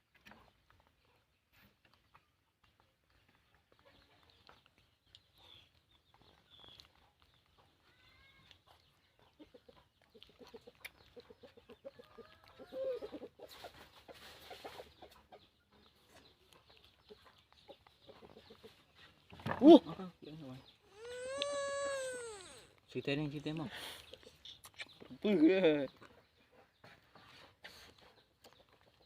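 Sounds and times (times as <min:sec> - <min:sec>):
chickens clucking: 0:08.4 - 0:22.8
high chirps: 0:20.8 - 0:22.7.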